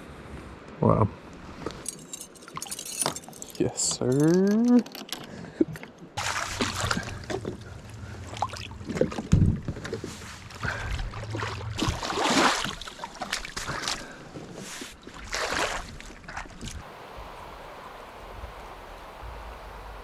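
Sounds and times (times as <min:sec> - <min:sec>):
water splashing around kayak: 0:05.6 - 0:20.0.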